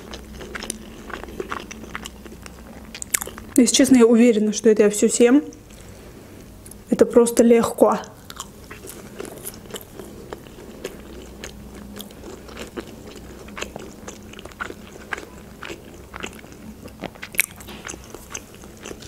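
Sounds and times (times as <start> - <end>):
chewing crispy chicken nugget: 0.0 - 3.6, 8.1 - 19.0.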